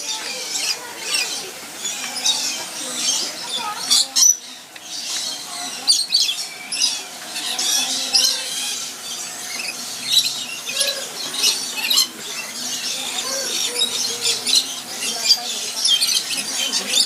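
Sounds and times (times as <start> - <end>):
birds chirping and squawking: 0.0 - 17.0.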